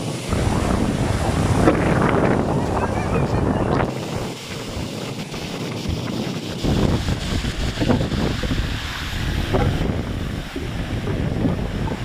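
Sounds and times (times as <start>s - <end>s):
deep rumble: 0.0s - 12.0s
heavy surf breaking: 0.0s - 12.0s
wind buffeting microphone: 0.0s - 12.0s.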